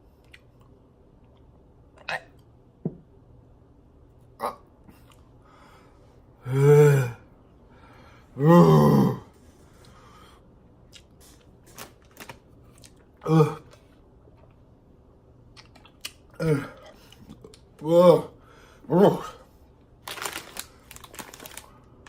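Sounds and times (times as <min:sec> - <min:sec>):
person groaning while eating: 0:06.4 - 0:07.3, 0:08.4 - 0:09.3, 0:13.2 - 0:13.8, 0:16.3 - 0:17.0, 0:17.8 - 0:19.5.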